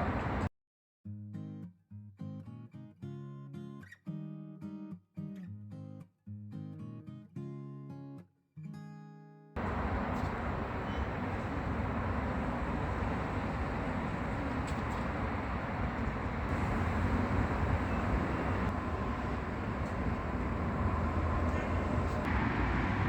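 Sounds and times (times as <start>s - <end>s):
moving vehicle rumble and hiss: 0.0s - 0.5s, 9.6s - 23.0s.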